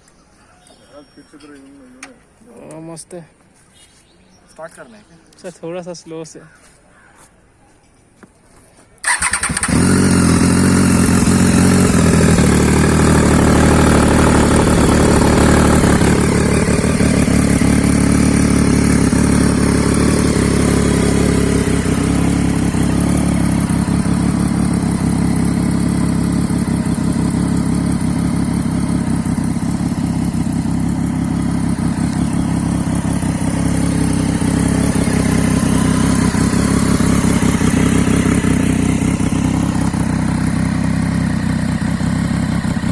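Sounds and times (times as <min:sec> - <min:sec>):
motorcycle engine idling: 0:09.0 - 0:42.9.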